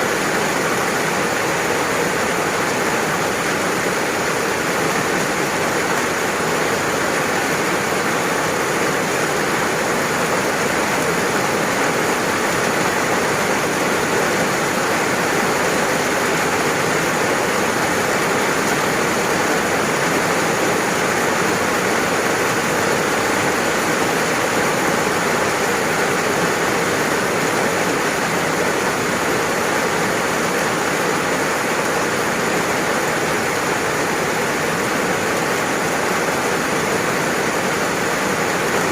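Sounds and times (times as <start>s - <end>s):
steady dense rainfall: 0.0s - 38.9s.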